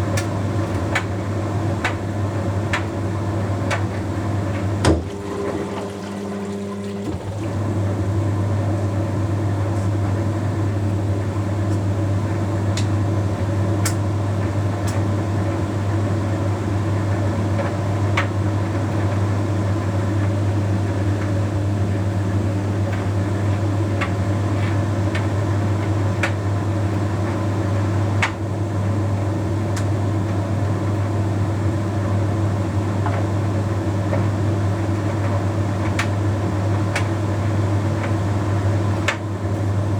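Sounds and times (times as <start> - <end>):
tumble dryer humming: 0.0 - 39.9
water pump high tone: 4.9 - 7.7.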